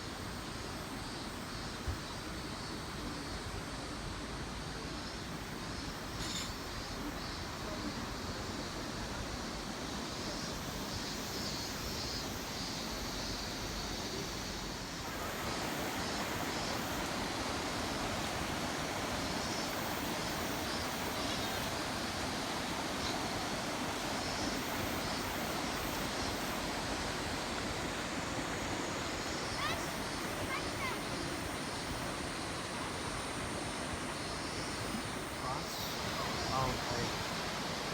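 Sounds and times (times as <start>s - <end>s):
fast-flowing river water rushing: 14.8s - 37.9s.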